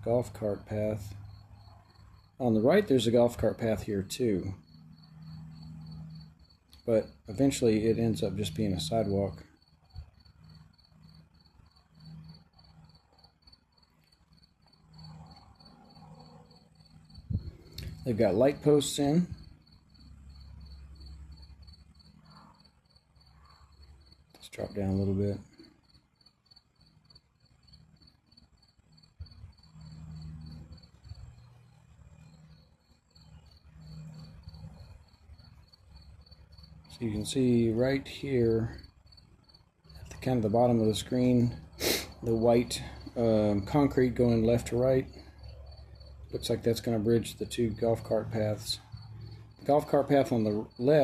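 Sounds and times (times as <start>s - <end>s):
faint cricket chirping: 0.0s - 51.0s
low hum and rumble: 14.8s - 22.6s.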